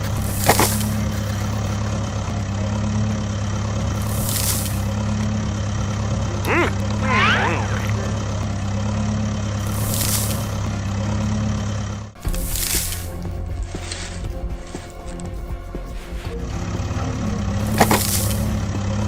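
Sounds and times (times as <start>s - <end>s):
truck engine idling: 0.0s - 19.0s
bending voice-like sound: 6.4s - 8.4s.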